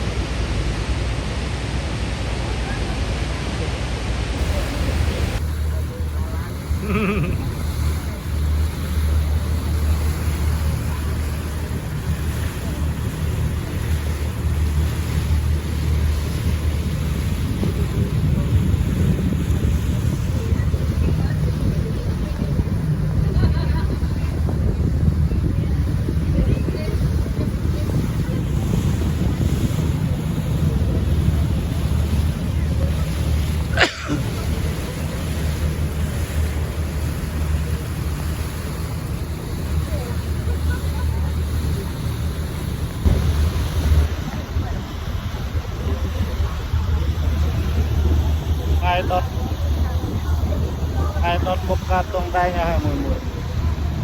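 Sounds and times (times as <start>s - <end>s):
boat engine low rumble: 0.0s - 54.0s
wind on microphone: 4.3s - 54.0s
rushing noise: 42.7s - 45.8s.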